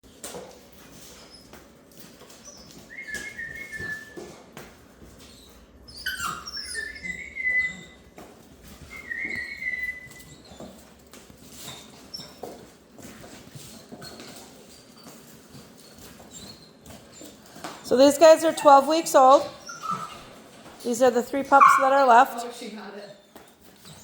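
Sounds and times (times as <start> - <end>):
puppies whining and yelping: 2.3 - 4.4, 5.0 - 10.9, 18.4 - 20.4, 21.5 - 22.1.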